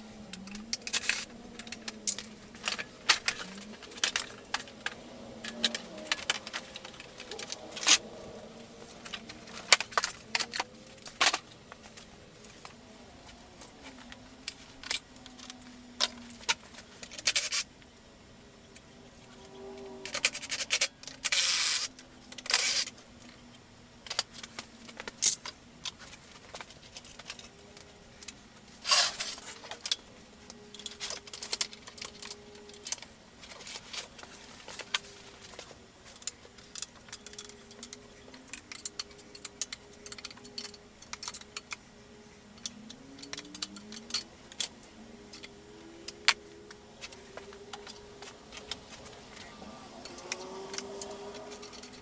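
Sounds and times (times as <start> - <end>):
metal tools clinking and rattling: 0.0 - 17.7, 18.7 - 52.0.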